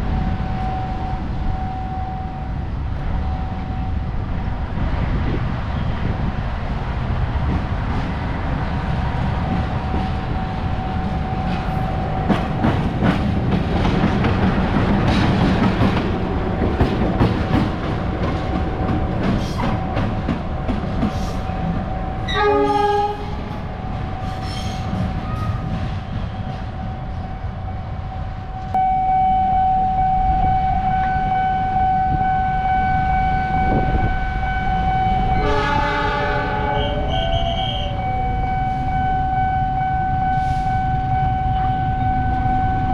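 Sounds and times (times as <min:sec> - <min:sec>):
train rumbling: 0:00.0 - 0:42.9
wheels clicking over rail joints: 0:08.8 - 0:26.7
locomotive horn: 0:22.2 - 0:23.6, 0:28.8 - 0:42.9.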